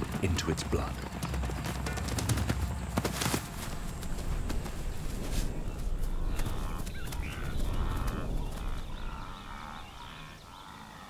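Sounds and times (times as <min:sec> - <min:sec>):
birds calling: 0:00.0 - 0:11.0
low rumble: 0:03.7 - 0:10.5.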